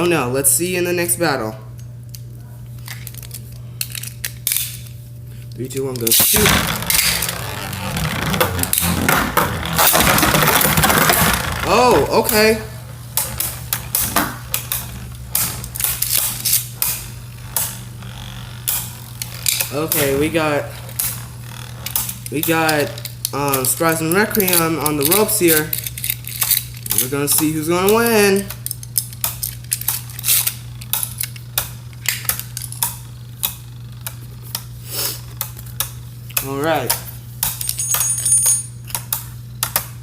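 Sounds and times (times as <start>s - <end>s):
spinning tops whirring: 5.6s - 36.2s
tops clacking together: 6.2s - 12.5s.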